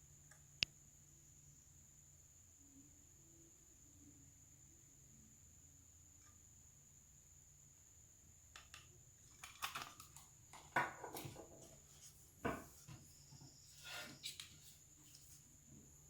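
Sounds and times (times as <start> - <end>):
faint high whine: 0.0 - 9.2, 11.2 - 16.0
small objects clicking and scraping: 8.6 - 11.7.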